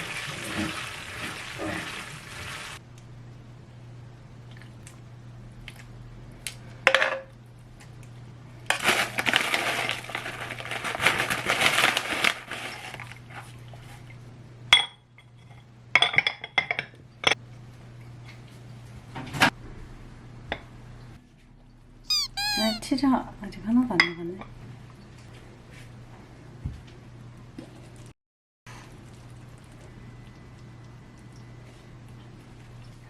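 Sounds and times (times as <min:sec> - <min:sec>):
faint steady hum: 0:28.7 - 0:33.0.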